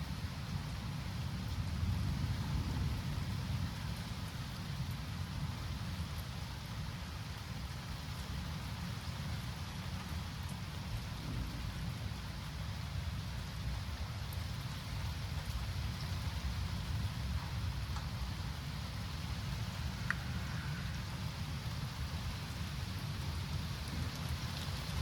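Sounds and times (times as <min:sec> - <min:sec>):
rain falling: 0:00.0 - 0:25.0
low thunder rumble: 0:01.3 - 0:06.0, 0:10.8 - 0:25.0.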